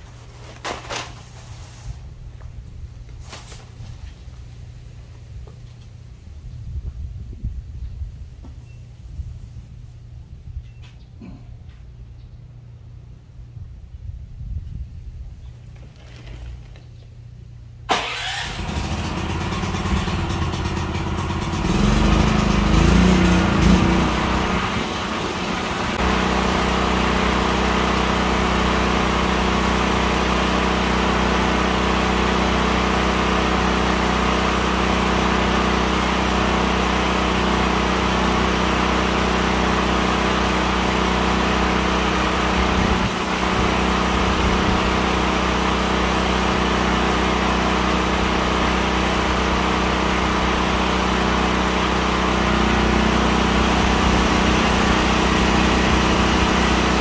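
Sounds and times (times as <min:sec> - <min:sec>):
motor running: 0:17.9 - 0:57.0.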